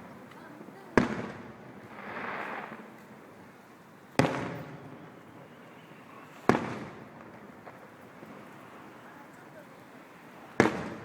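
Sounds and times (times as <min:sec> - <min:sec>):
fireworks booming: 0:00.8 - 0:03.0, 0:04.1 - 0:05.2, 0:06.1 - 0:08.5, 0:10.4 - 0:11.0.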